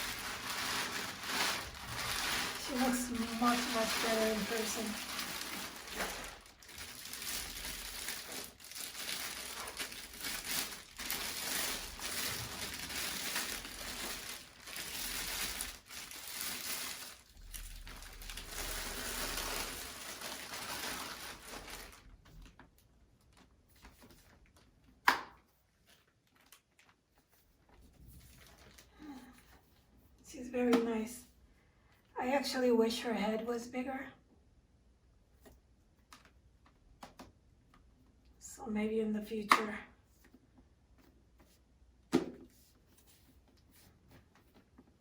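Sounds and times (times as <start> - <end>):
packaging crinkling and rustling: 0.0 - 29.8.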